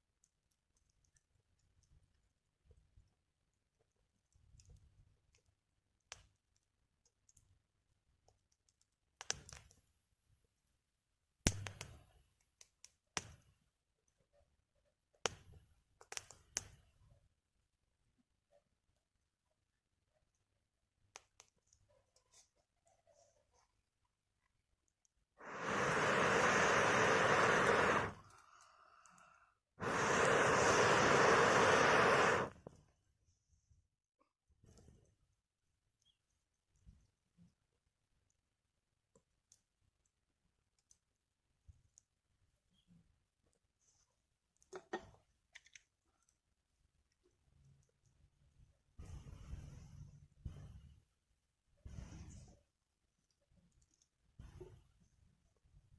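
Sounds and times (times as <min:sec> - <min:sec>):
fire snaps: 0:04.2 - 0:10.0, 0:11.4 - 0:13.6, 0:15.2 - 0:17.1, 0:21.1 - 0:21.8, 0:25.4 - 0:32.9
air blown through a pipe: 0:25.4 - 0:28.3, 0:29.8 - 0:32.6
short hiss: 0:25.4 - 0:28.4, 0:29.8 - 0:32.7
firewood crackling: 0:25.4 - 0:28.6, 0:29.8 - 0:32.6.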